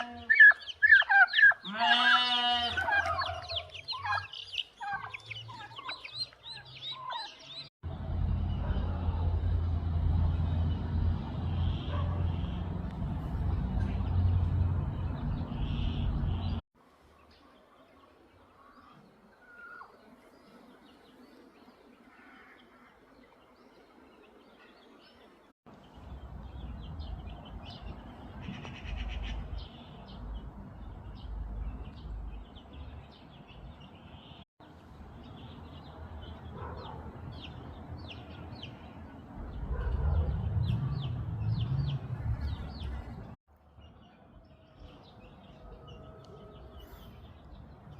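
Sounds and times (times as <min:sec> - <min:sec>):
small birds chirping: 0:00.0 - 0:07.7, 0:10.4 - 0:16.6, 0:17.2 - 0:47.9
outdoor background noise: 0:00.0 - 0:47.9
heavy low rumble: 0:07.8 - 0:16.6, 0:39.3 - 0:43.4.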